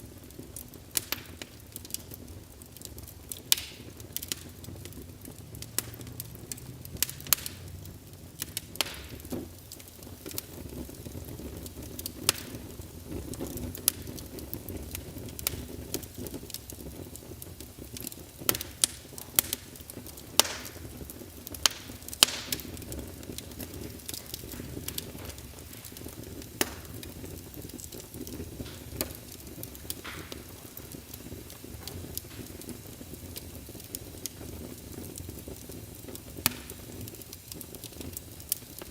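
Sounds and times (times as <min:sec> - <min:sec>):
low roar of burning flames: 0:00.0 - 0:38.9
wood fire crackling and popping: 0:00.0 - 0:38.9.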